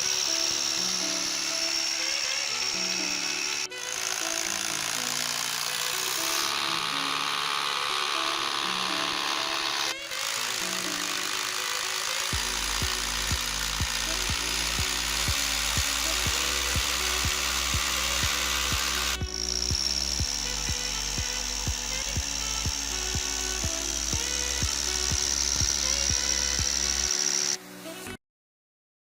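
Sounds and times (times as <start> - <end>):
running machine with high whine: 0.0 - 27.7
rotary hammer whirring: 0.0 - 28.0
background music with beat: 12.4 - 26.9.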